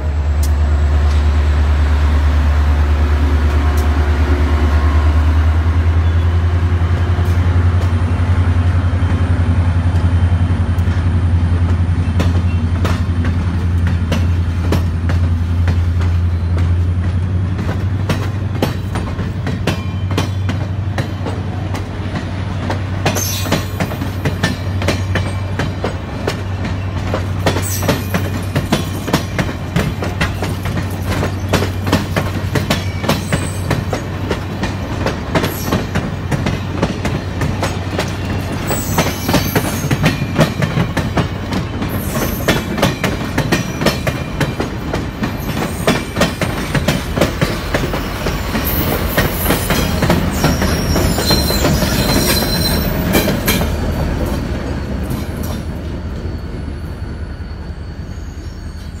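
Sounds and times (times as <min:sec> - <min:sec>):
train wheels clicking over rail joints: 0:05.2 - 0:56.3
high wheel squeal: 0:26.4 - 0:29.5, 0:37.8 - 0:41.0, 0:41.8 - 0:44.4, 0:47.7 - 0:59.0.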